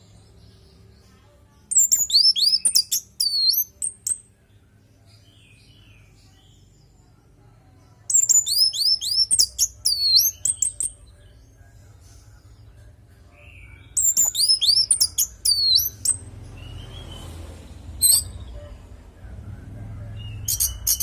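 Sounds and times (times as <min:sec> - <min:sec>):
bird singing high whistles: 0:01.7 - 0:03.7, 0:08.1 - 0:10.4, 0:14.0 - 0:17.2, 0:20.5 - 0:21.0.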